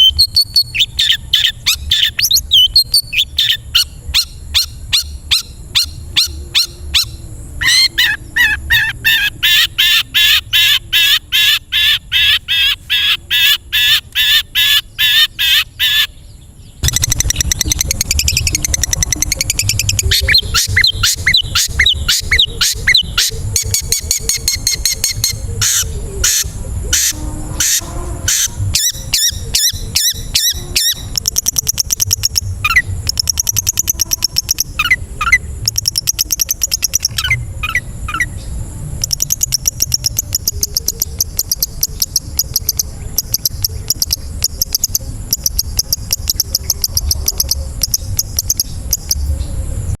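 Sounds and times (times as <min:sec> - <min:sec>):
shrike singing rapid notes: 0:00.0 - 0:16.2, 0:16.8 - 0:49.6
low rumble: 0:16.4 - 0:23.7, 0:25.3 - 0:35.8.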